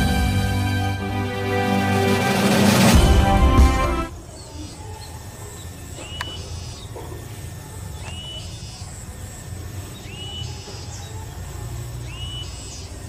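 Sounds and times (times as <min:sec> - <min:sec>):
bird whistled call: 0:10.0 - 0:10.5, 0:12.1 - 0:12.9.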